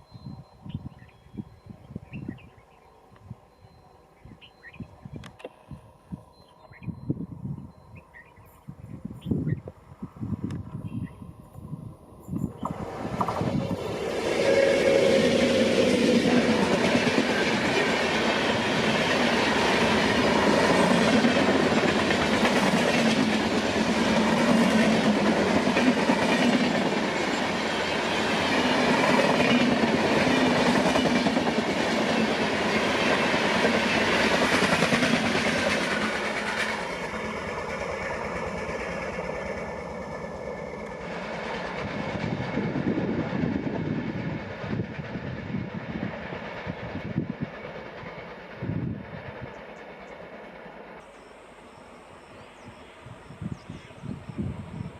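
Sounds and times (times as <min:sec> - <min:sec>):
train wheels rumbling on rails: 0:09.2 - 0:51.9.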